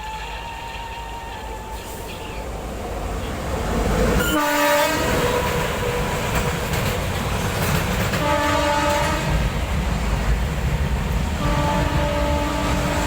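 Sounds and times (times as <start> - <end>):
train wheels rumbling on rails: 0.0 - 13.0
locomotive horn blast: 4.2 - 6.2, 8.2 - 9.4, 11.4 - 13.0.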